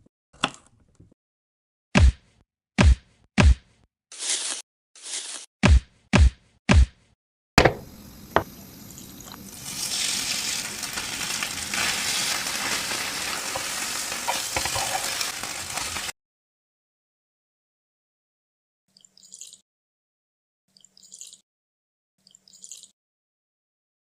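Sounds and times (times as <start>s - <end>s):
sharp knocks: 7.6s - 8.5s
food sizzling in hot oil: 7.7s - 16.1s.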